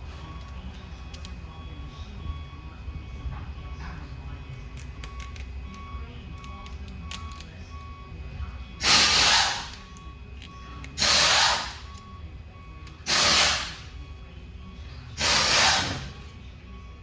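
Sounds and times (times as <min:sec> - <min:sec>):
faint repeating beep: 0:05.6 - 0:08.7.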